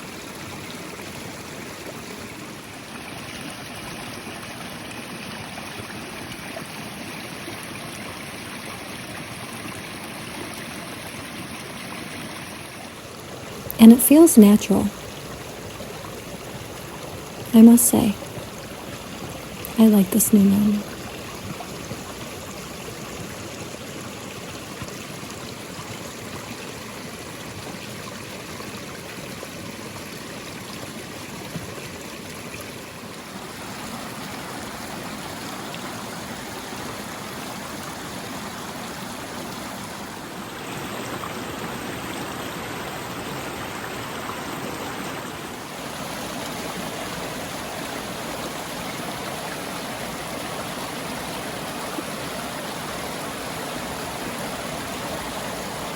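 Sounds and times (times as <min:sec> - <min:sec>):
stream flowing water: 0:00.0 - 0:55.9.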